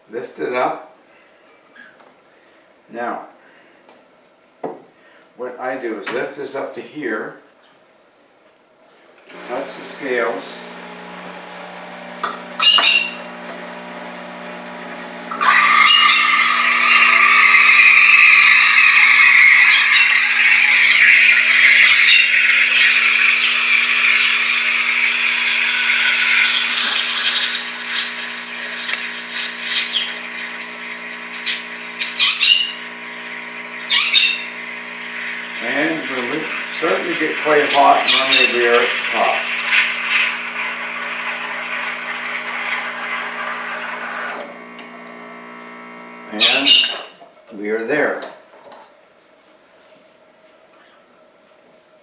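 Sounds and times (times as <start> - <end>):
steam wand hissing into milk: 9.3 - 46.8.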